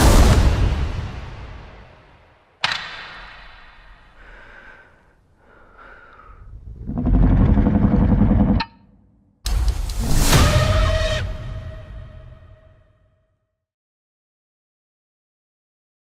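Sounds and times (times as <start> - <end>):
loud low rumbling swell: 6.4 - 8.6.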